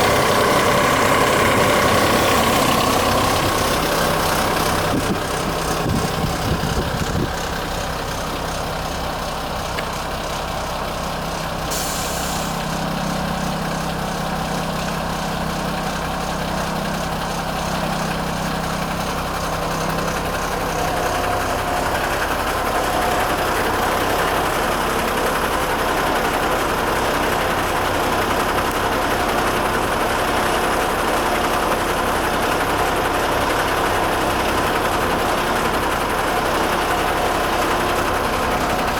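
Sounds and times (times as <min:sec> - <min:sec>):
diesel truck engine idling: 0:00.0 - 0:38.9
short hiss: 0:11.7 - 0:12.7.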